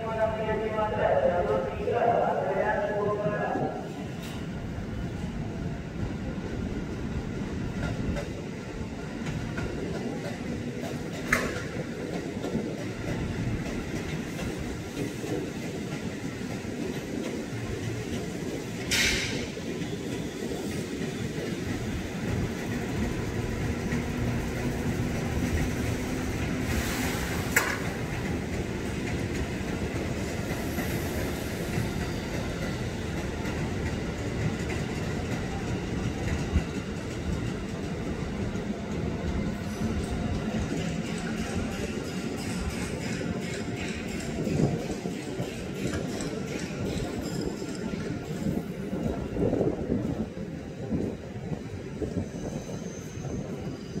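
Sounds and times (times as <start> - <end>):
electric train rumbling: 0.0 - 54.0
wheels clacking over rail joints: 31.7 - 48.5.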